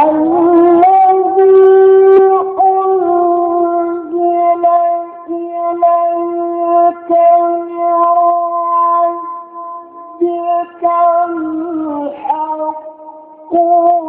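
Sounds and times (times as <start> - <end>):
man chanting melodically: 0.0 - 9.3.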